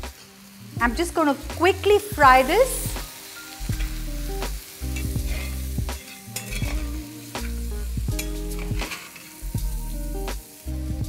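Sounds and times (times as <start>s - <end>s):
background music: 0.0s - 11.0s
chicken sizzling in a pan: 0.0s - 11.0s
spatula scraping and knocking pan: 4.9s - 9.4s.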